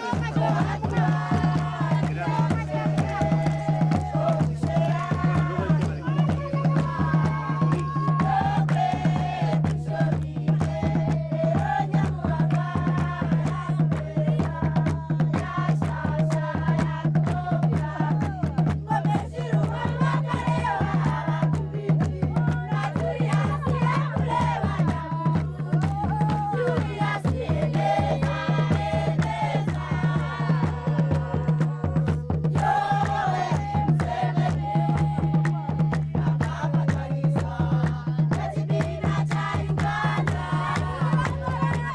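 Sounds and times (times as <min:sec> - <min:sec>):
group chant-like singing: 0:00.0 - 0:41.9
quick steady drum beat: 0:00.0 - 0:41.9.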